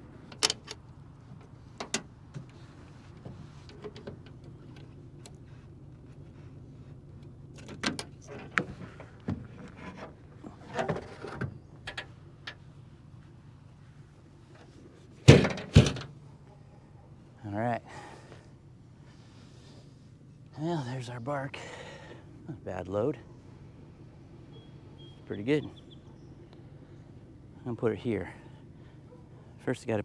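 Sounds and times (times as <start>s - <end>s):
pickup engine running: 0.0s - 29.7s.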